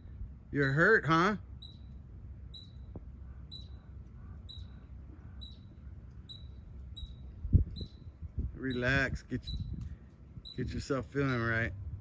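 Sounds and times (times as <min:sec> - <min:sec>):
high animal chirp: 0:01.5 - 0:09.8, 0:10.4 - 0:11.0.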